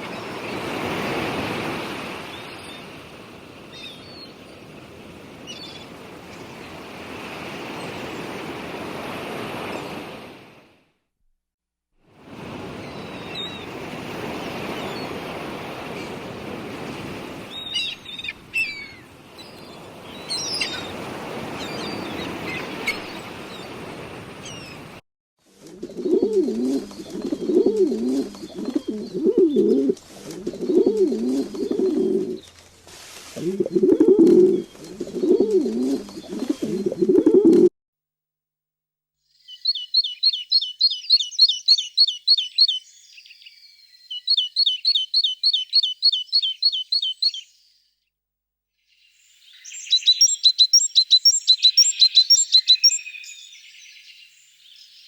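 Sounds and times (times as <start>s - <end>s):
dove cooing: 25.8s - 32.4s, 33.4s - 37.7s
high bird chirps: 39.4s - 47.8s, 49.3s - 55.0s.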